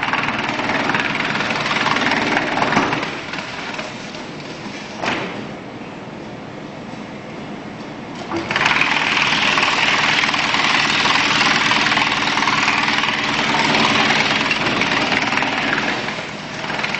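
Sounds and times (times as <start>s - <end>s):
wood chipper hum: 0.0s - 4.5s, 8.3s - 16.9s
wood being chipped: 8.5s - 16.9s.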